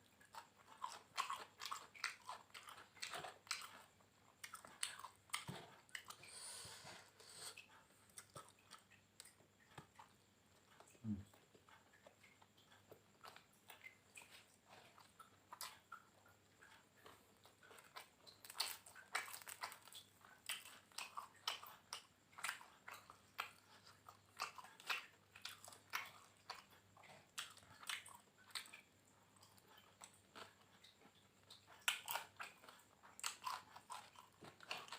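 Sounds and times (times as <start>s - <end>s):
person chewing crunchy food: 0.0s - 34.9s.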